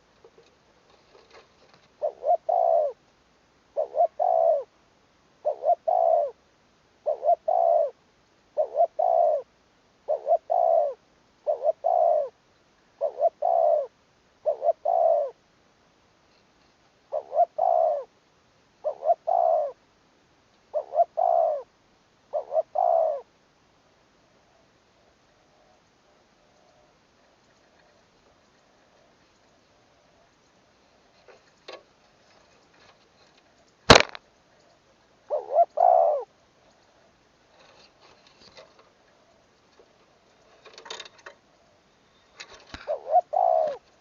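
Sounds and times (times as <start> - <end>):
dove cooing: 1.3 - 3.0, 3.7 - 4.7, 5.4 - 6.4, 7.0 - 12.4, 13.0 - 15.4, 17.1 - 18.2, 18.8 - 19.8, 20.7 - 21.7, 22.3 - 23.3, 24.4 - 31.0, 34.7 - 37.8, 38.6 - 44.0.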